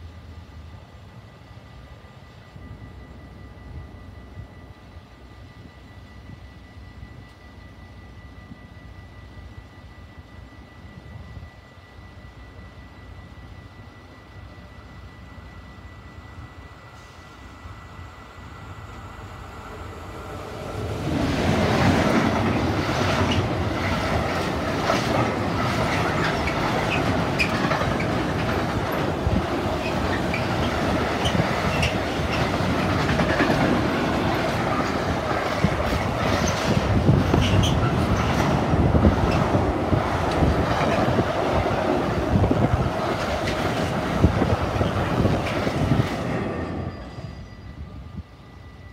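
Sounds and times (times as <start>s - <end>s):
freight train rolling: 0.0s - 48.9s
wheel squeals: 25.9s - 28.5s, 36.3s - 38.5s, 46.6s - 48.0s.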